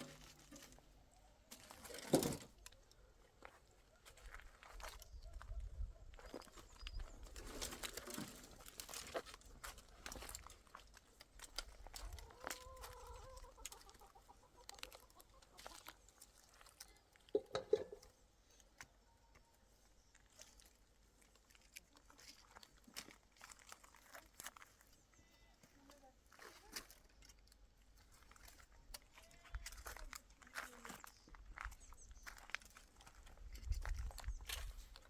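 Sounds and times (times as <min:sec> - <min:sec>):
chickens clucking: 0:11.6 - 0:16.6, 0:17.3 - 0:19.0.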